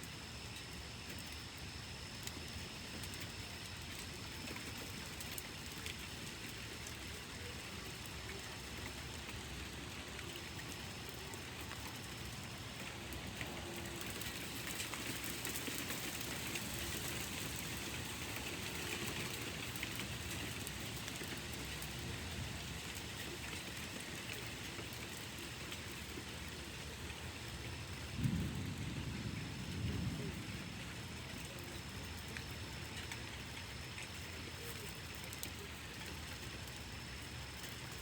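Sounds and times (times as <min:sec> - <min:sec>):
steady rain falling: 0:00.0 - 0:38.0
drip ticks: 0:31.5 - 0:38.0.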